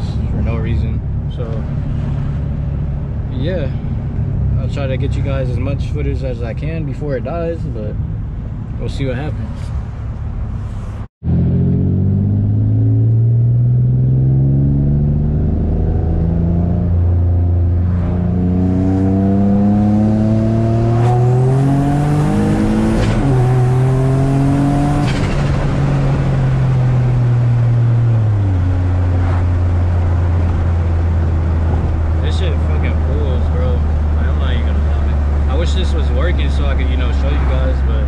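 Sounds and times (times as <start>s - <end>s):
car engine accelerating through gears: 11.2s - 38.0s.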